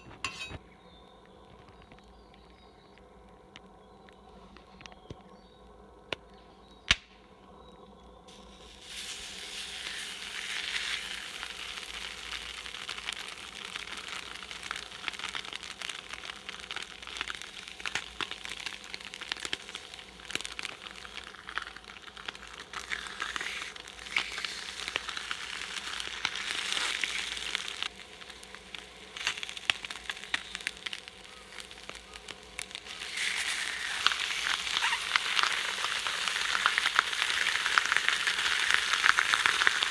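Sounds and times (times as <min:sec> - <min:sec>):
small crackles and pops: 0:00.0 - 0:39.9
fish sizzling on a griddle: 0:08.3 - 0:39.9.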